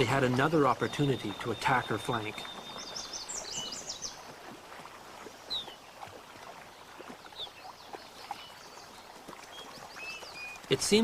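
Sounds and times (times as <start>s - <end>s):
small birds chirping: 0.0s - 4.5s, 5.1s - 11.0s
faint water splashing: 0.0s - 11.0s.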